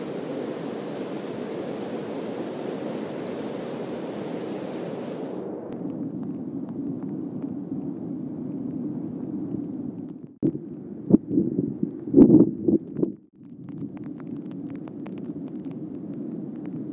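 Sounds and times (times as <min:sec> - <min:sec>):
creek water rushing: 0:00.0 - 0:05.5.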